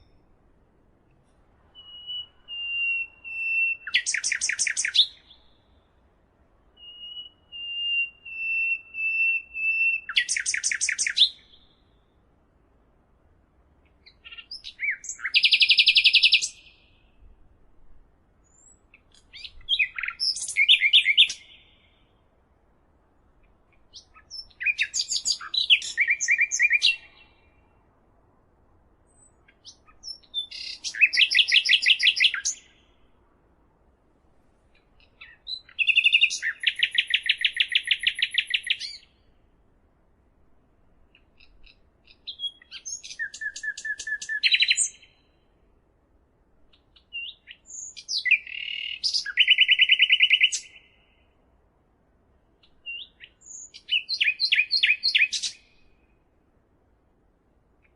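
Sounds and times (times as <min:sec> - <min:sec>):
songbird singing with trills: 0:01.7 - 0:05.9, 0:06.8 - 0:12.2, 0:14.0 - 0:17.3, 0:18.4 - 0:22.2, 0:23.8 - 0:27.8, 0:29.1 - 0:33.1, 0:34.8 - 0:39.4, 0:41.1 - 0:45.4, 0:46.7 - 0:51.4, 0:52.6 - 0:56.2.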